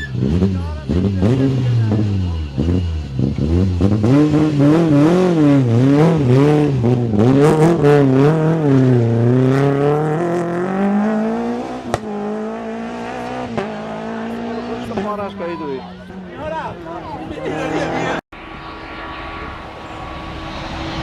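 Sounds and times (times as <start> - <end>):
rally car engine revving: 0.0 - 18.2.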